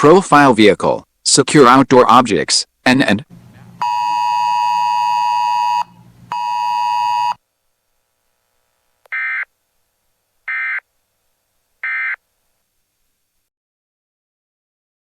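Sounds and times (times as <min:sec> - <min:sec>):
long electronic beeps: 0:03.8 - 0:07.4, 0:10.5 - 0:10.8, 0:11.8 - 0:12.2.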